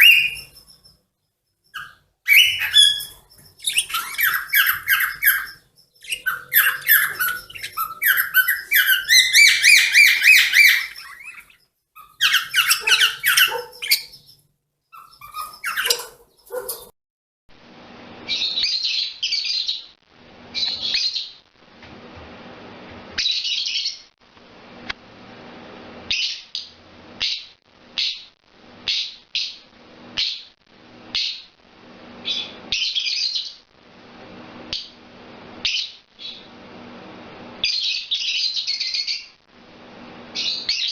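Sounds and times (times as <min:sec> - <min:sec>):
songbirds singing and chirping: 0:00.0 - 0:01.0, 0:01.8 - 0:14.4, 0:15.0 - 0:16.9.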